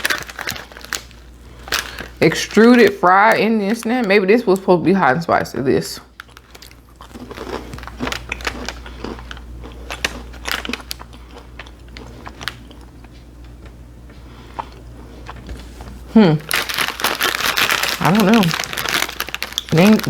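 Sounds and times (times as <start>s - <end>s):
person chewing crunchy snack: 0.0s - 2.2s, 6.2s - 20.0s.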